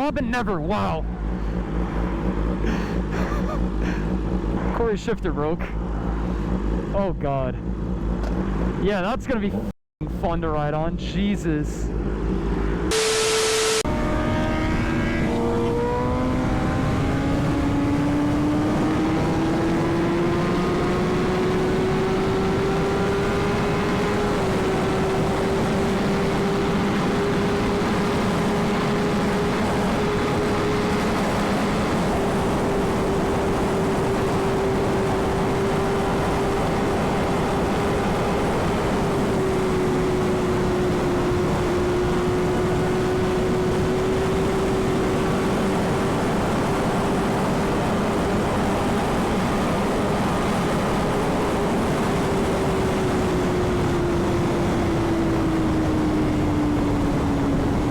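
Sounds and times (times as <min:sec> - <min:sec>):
motorcycle engine droning: 0:00.0 - 0:57.9
wind rush on microphone: 0:13.8 - 0:57.9.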